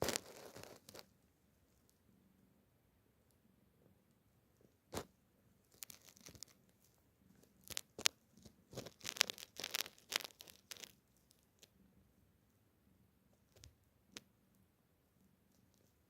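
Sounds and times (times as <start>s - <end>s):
cat scratching and rustling: 0.0s - 1.1s, 5.7s - 11.7s.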